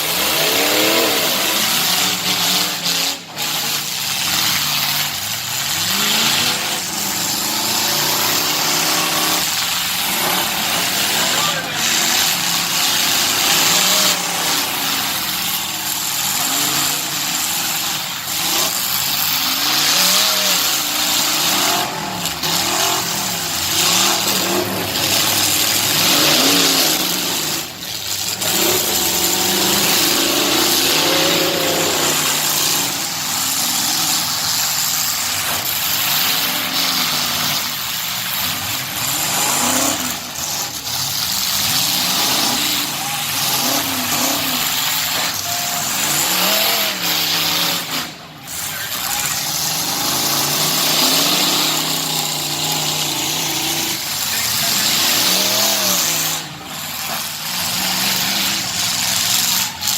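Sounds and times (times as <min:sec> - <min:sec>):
truck engines revving: 0:00.0 - 0:59.9.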